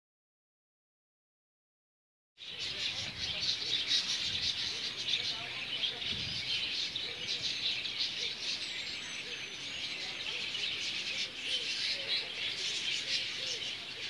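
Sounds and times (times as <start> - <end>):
small birds twittering: 2.4 - 14.0.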